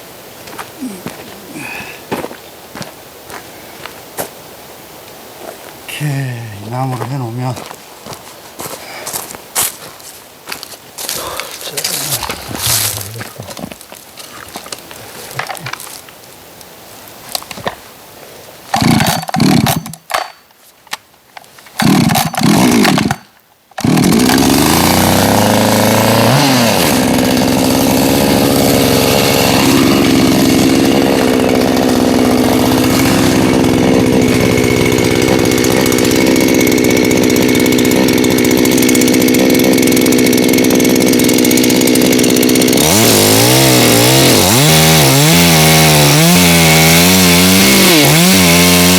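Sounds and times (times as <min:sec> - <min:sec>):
chainsaw running: 0:00.8 - 0:02.1, 0:11.0 - 0:15.9, 0:18.8 - 0:20.4, 0:21.7 - 0:48.9.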